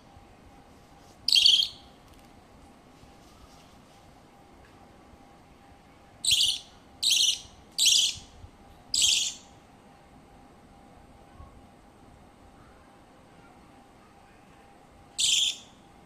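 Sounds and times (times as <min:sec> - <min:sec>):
bird raspy calls: 0:06.2 - 0:08.2, 0:09.0 - 0:09.4, 0:15.2 - 0:15.7.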